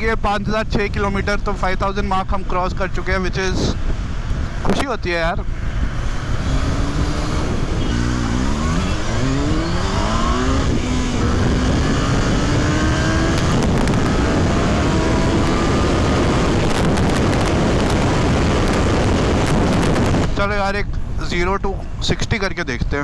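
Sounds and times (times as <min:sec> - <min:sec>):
wind rush: 0:00.0 - 0:23.0
motorcycle engine accelerating: 0:05.8 - 0:20.4.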